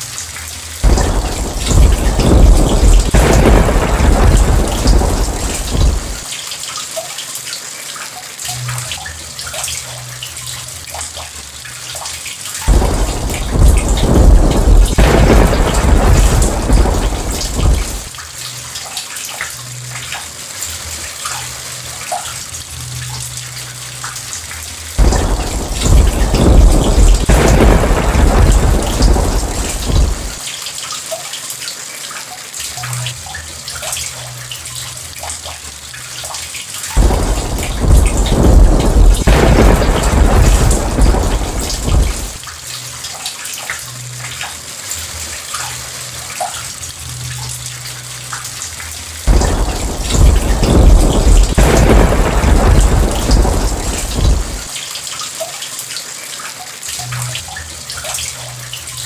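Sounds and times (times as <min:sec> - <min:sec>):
steady rain: 0:00.0 - 0:59.0
rolling thunder: 0:00.8 - 0:06.3, 0:12.7 - 0:18.2, 0:25.0 - 0:30.4, 0:37.0 - 0:42.4, 0:49.3 - 0:54.7.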